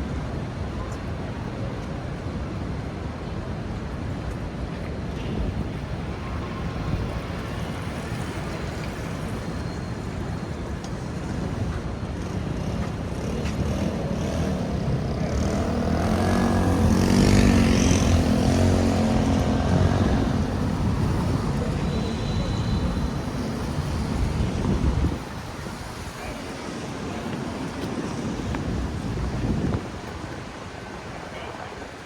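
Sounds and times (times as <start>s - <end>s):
vehicle driving past on wet street: 12.2s - 26.9s.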